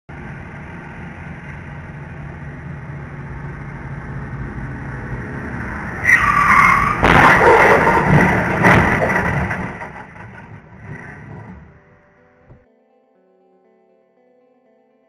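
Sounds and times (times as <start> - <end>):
car engine and road rumble: 0.1 - 12.7
sudden loud sound: 5.7 - 11.0.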